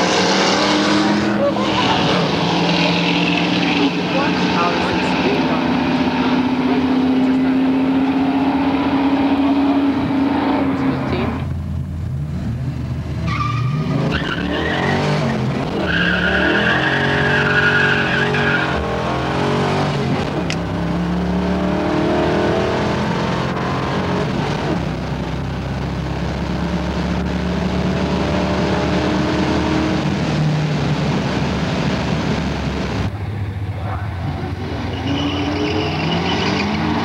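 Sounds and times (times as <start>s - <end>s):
car engine accelerating hard: 0.0s - 37.0s
tyre squeal: 13.2s - 15.0s, 34.8s - 37.0s.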